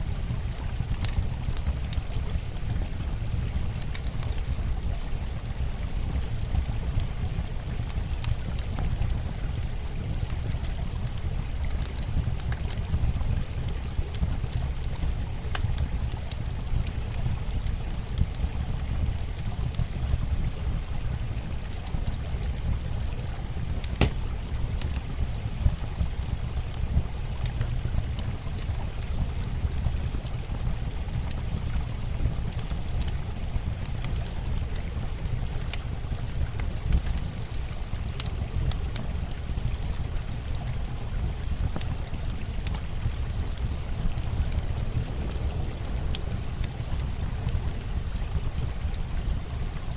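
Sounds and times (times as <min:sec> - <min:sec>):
flowing water: 0:00.0 - 0:49.9
campfire crackling: 0:00.1 - 0:49.9
burning wood popping: 0:23.8 - 0:25.0.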